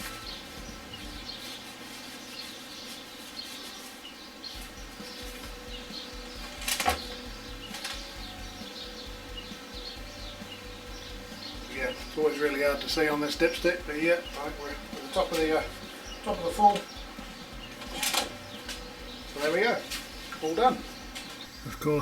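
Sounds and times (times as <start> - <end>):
birds chirping faintly: 0.0 - 22.0.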